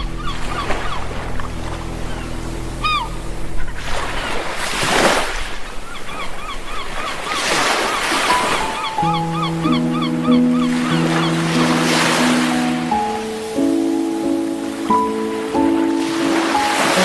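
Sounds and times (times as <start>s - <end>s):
soft sustained music chord: 0.0s - 4.6s, 8.8s - 17.0s
sea waves washing onto beach: 0.0s - 17.0s.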